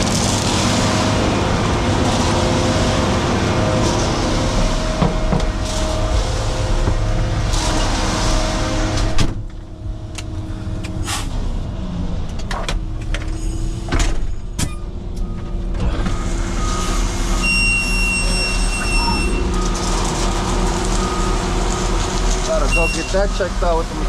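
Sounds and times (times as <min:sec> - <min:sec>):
truck engine idling: 0:18.4 - 0:24.0.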